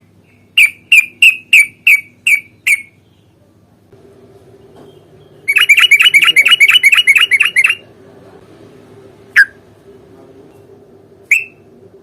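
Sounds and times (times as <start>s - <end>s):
bird giving sharp call notes: 5.5s - 7.8s.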